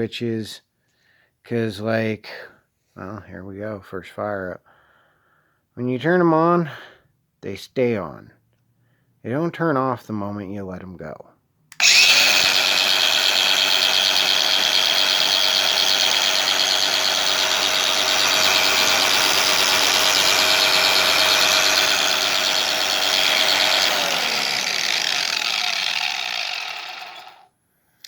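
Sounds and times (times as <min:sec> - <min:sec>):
angle grinder whining: 0:11.8 - 0:27.5.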